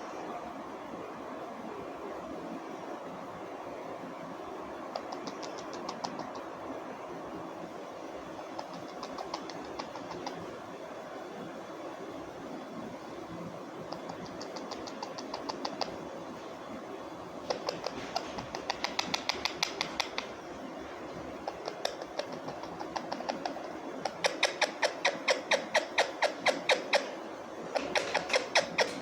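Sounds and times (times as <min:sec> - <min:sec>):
parrot clicking calls: 0:05.0 - 0:06.5, 0:08.5 - 0:10.5, 0:13.9 - 0:16.0, 0:17.4 - 0:20.4, 0:21.4 - 0:29.0.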